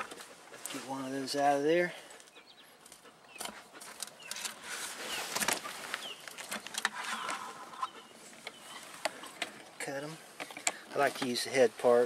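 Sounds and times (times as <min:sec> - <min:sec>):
bird chirps: 0:02.2 - 0:09.3
hands handling fish and net: 0:02.2 - 0:11.6.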